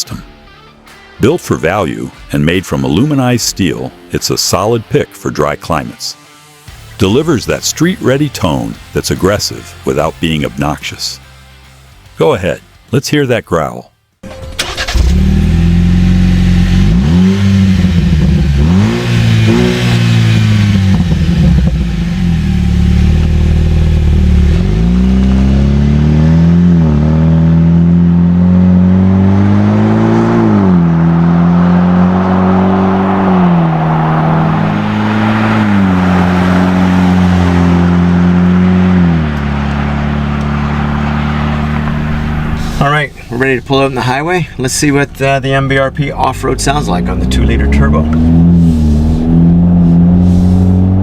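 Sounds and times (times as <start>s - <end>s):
car engine idling and revving: 14.2s - 51.0s.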